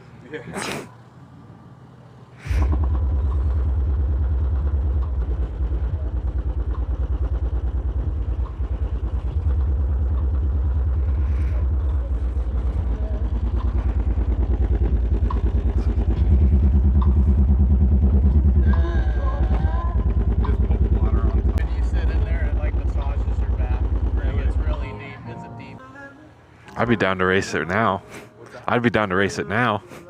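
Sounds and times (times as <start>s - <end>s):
fast pulsing rattle: 2.4s - 25.0s
subwoofer deep bass notes: 2.5s - 25.8s.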